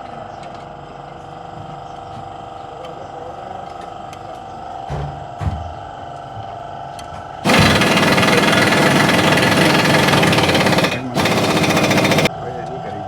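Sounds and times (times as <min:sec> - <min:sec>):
power tool hammering rattle: 0:07.4 - 0:12.3.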